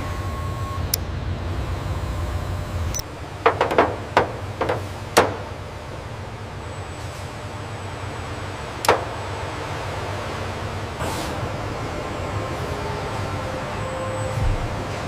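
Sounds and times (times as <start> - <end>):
sharp knocks and clicks: 3.0 - 5.7, 8.8 - 9.2.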